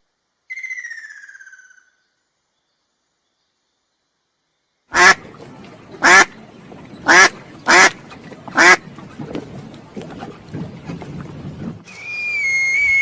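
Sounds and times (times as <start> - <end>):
duck quacking: 4.9 - 5.2, 6.0 - 6.3, 7.0 - 8.8.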